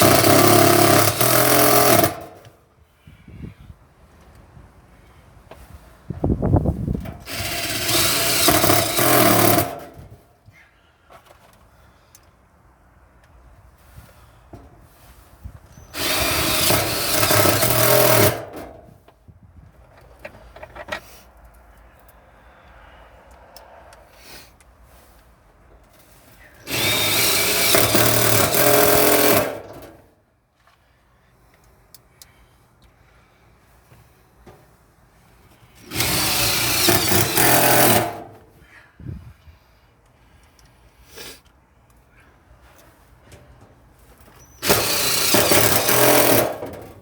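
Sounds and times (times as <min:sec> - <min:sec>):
power drill running: 0:00.0 - 0:02.3, 0:07.2 - 0:09.9, 0:15.9 - 0:18.6, 0:26.6 - 0:29.9, 0:35.8 - 0:38.2, 0:44.6 - 0:46.9.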